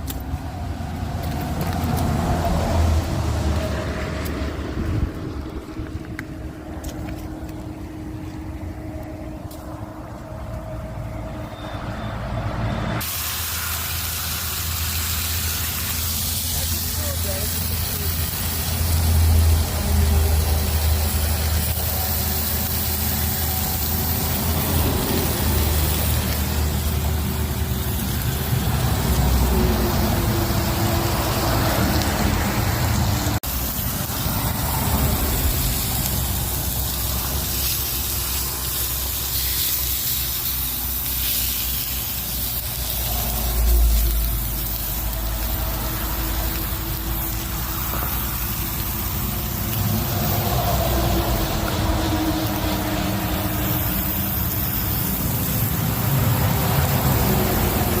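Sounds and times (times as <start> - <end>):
steady hiss: 13.0 - 58.0.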